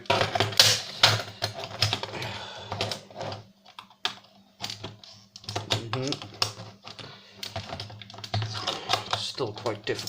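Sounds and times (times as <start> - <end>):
plastic clicks and knocks: 2.7 - 10.0.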